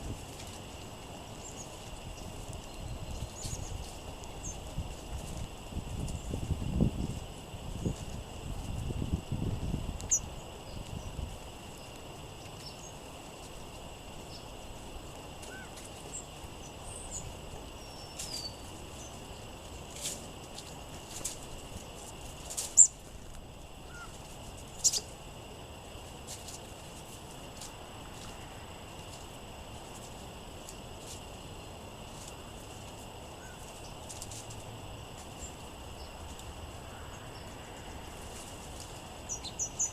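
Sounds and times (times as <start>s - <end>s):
steady hiss: 0.0s - 39.9s
songbirds chipping and calling: 0.4s - 4.8s, 9.9s - 20.1s, 22.6s - 25.3s, 35.4s - 38.2s, 39.2s - 39.9s
wind gusting on microphone: 1.9s - 11.6s.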